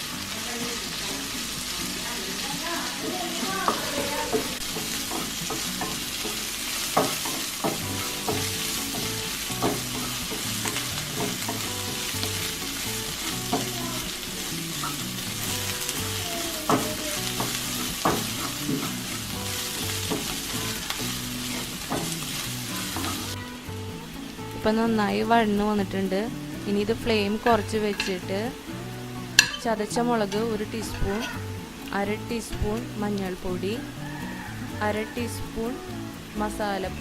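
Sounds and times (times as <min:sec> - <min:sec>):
food sizzling in oil: 0:00.0 - 0:37.0
spoon knocking against pan: 0:03.6 - 0:12.2, 0:16.6 - 0:22.3, 0:29.4 - 0:29.7.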